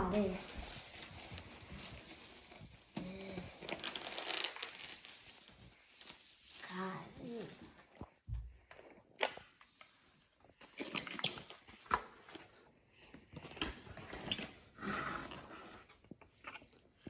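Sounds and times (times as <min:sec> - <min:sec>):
food packaging crinkling: 0:00.1 - 0:08.0.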